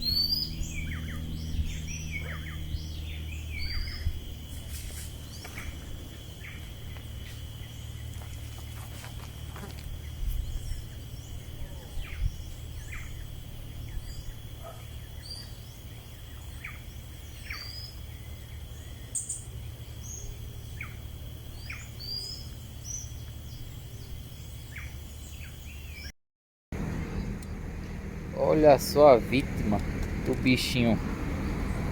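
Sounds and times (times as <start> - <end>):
bird chirps: 0.0 - 8.9, 10.0 - 26.1
low rumble: 26.8 - 31.9.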